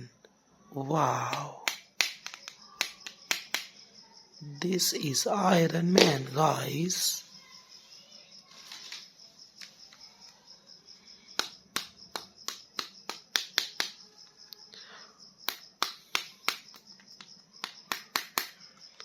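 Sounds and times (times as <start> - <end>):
plastic figure clicks and taps: 1.3 - 3.7, 11.4 - 14.0, 15.5 - 19.0.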